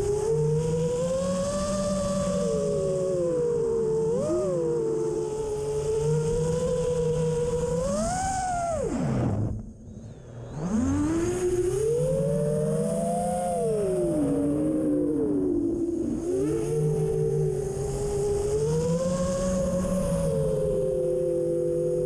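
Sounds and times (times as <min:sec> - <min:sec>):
drone motors whining: 0:00.0 - 0:22.0
low rumble of wind: 0:05.5 - 0:16.1.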